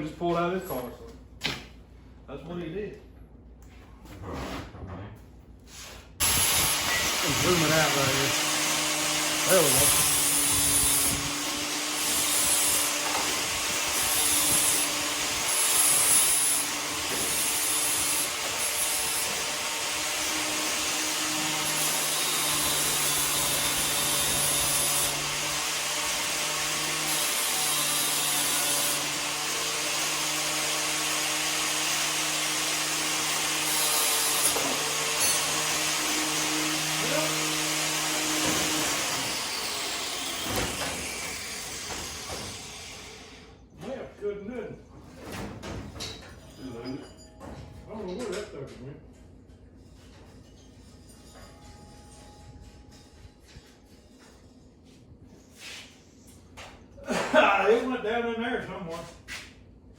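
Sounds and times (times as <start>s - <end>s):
electric tool motor humming: 6.2s - 43.4s.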